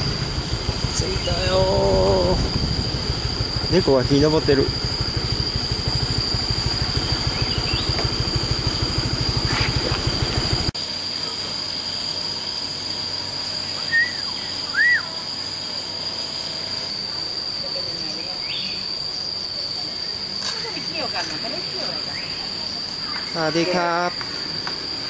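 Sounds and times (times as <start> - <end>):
motorcycle engine idling: 0.0 - 11.3
high-pitched insect drone: 0.0 - 25.0.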